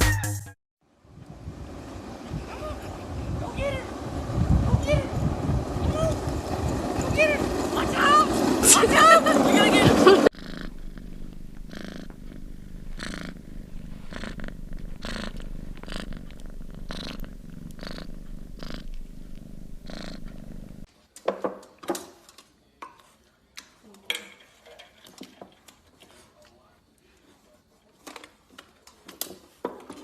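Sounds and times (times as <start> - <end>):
cat purring: 2.2 - 20.9.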